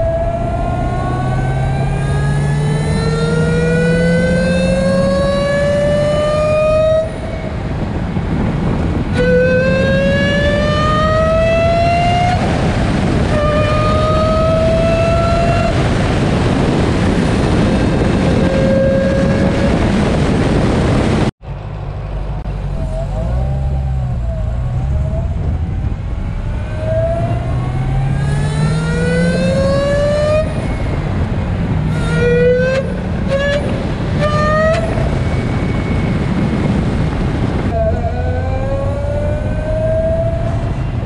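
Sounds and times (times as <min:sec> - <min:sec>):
car engine accelerating: 0:00.0 - 0:41.0
supercharger whine: 0:00.0 - 0:41.0
wind rush: 0:00.0 - 0:41.0.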